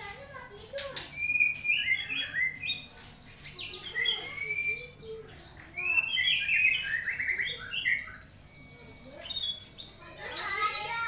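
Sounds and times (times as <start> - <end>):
bird singing whistled notes: 1.1 - 11.0.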